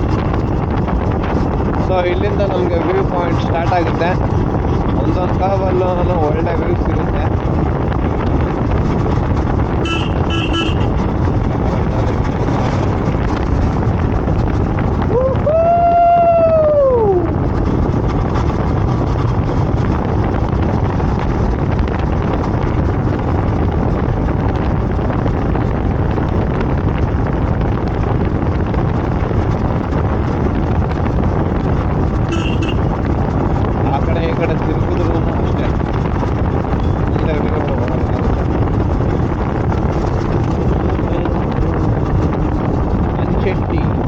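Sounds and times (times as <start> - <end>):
motorcycle engine rumble: 0.0 - 44.0
wind on microphone: 0.0 - 44.0
vehicle horn tooting: 9.8 - 11.0, 32.3 - 32.9.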